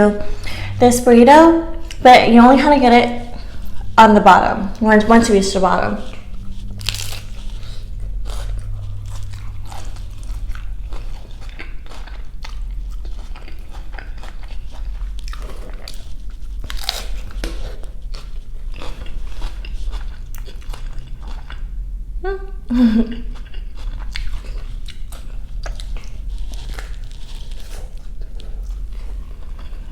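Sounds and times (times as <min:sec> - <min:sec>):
steady low hum: 0:00.0 - 0:29.9
crisp crunchy chewing: 0:06.0 - 0:21.7, 0:23.3 - 0:29.9.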